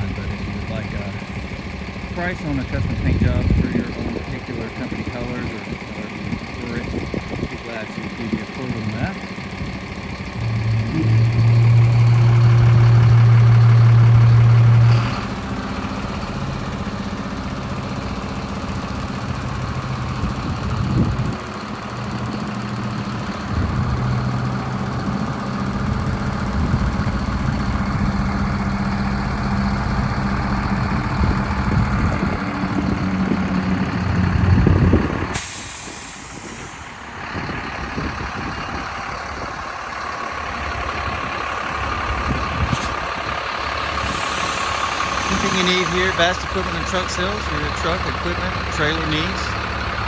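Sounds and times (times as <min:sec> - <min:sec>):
truck diesel engine idling: 0:00.0 - 0:50.0
burst of hiss: 0:35.4 - 0:36.9.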